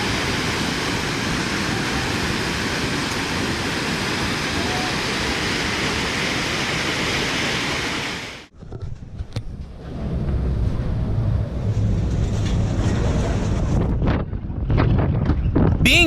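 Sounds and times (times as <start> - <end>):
overflowing river rushing: 0.0 - 8.4.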